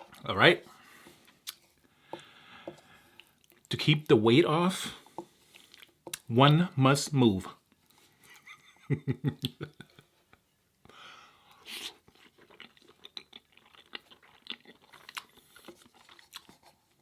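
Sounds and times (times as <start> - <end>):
chewing food: 1.0 - 4.1, 5.0 - 6.3, 11.5 - 17.0
food crunch: 5.0 - 6.3, 11.6 - 17.0.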